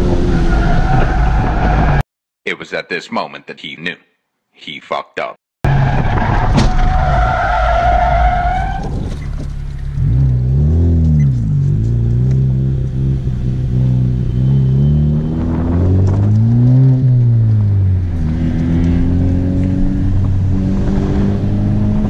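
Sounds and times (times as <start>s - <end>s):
car engine revving: 9.2s - 22.0s.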